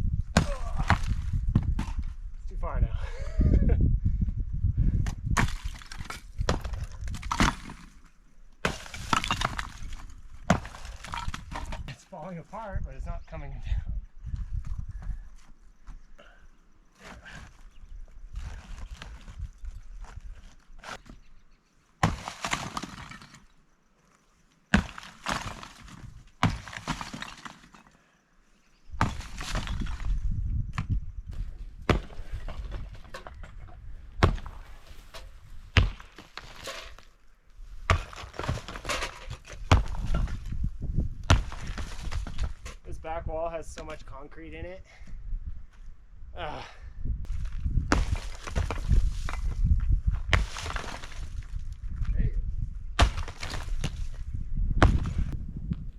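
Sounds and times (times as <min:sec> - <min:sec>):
concrete block cracking: 0:05.1 - 0:12.0, 0:22.0 - 0:23.6, 0:24.7 - 0:28.0, 0:37.9 - 0:40.6, 0:41.3 - 0:42.8, 0:47.9 - 0:51.6, 0:53.0 - 0:54.2
sledgehammer striking block wall: 0:05.3 - 0:07.9, 0:22.0 - 0:23.4, 0:24.7 - 0:27.6, 0:31.9 - 0:33.2, 0:34.2 - 0:34.6, 0:35.8 - 0:36.8, 0:37.9 - 0:40.6, 0:47.8 - 0:49.6, 0:53.0 - 0:54.0, 0:54.7 - 0:55.3
broken block rattling and crumbling: 0:08.7 - 0:12.0, 0:22.1 - 0:23.6, 0:24.7 - 0:28.0, 0:29.0 - 0:30.2, 0:37.9 - 0:40.6.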